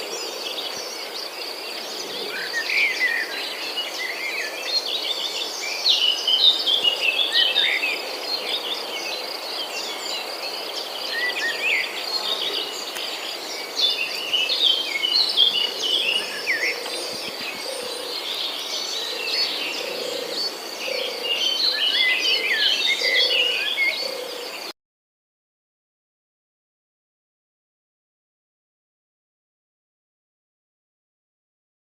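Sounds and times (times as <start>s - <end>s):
small birds chirping: 0.0s - 24.7s.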